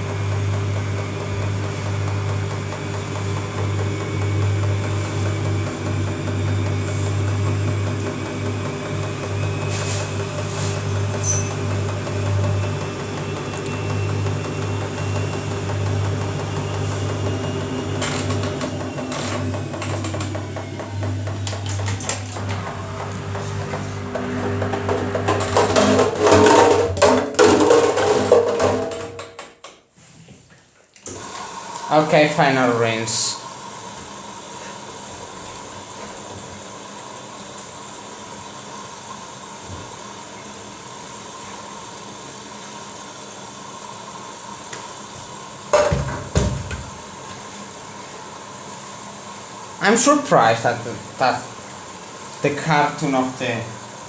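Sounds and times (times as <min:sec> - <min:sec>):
washing machine motor hum: 0:00.0 - 0:29.4, 0:30.9 - 0:54.0
carton clattering in drum: 0:23.3 - 0:29.4.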